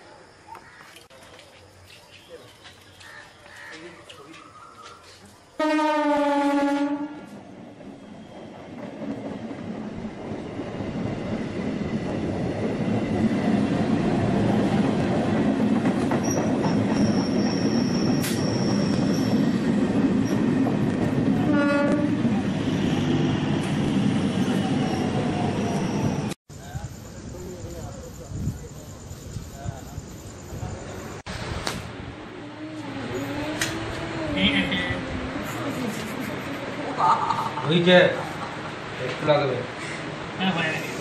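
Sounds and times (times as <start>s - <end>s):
train horn blast: 5.6s - 7.4s, 21.4s - 22.8s
train wheels rumbling on rails: 7.2s - 41.0s.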